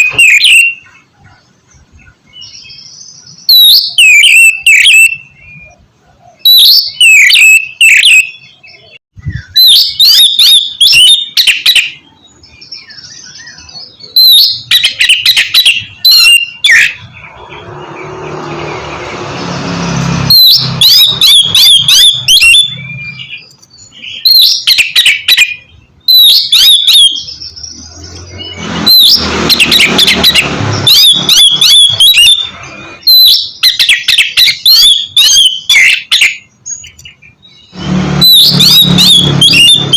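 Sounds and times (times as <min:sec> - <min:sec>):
bird singing whistled notes: 0:00.0 - 0:39.9
rushing noise: 0:37.8 - 0:39.9.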